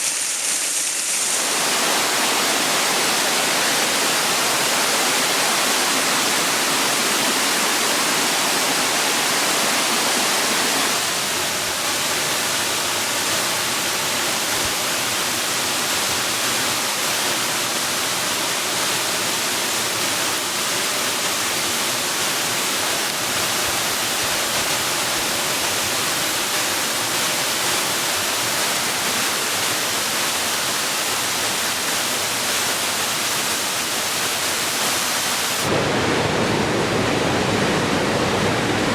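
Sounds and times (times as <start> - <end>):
rush of flowing water: 0.0 - 38.9.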